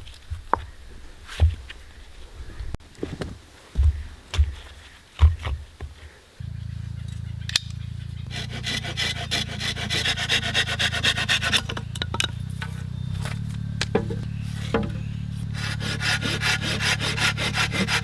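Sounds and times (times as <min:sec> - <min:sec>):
steady low hum: 0:06.4 - 0:18.0
hand saw cutting wood: 0:08.3 - 0:18.0.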